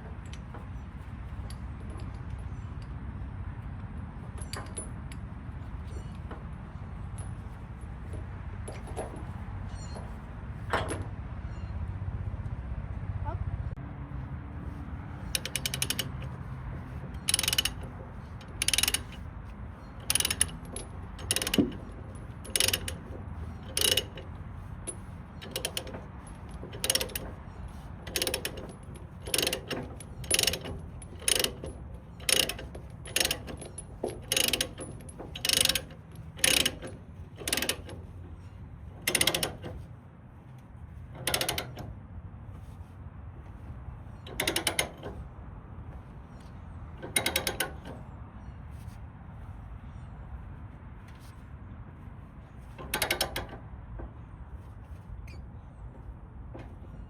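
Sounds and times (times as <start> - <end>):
ratchet strap clicking: 15.3 - 19.3, 20.0 - 38.1, 39.0 - 39.8, 41.2 - 41.9, 44.3 - 45.2, 47.0 - 48.0, 52.7 - 53.6.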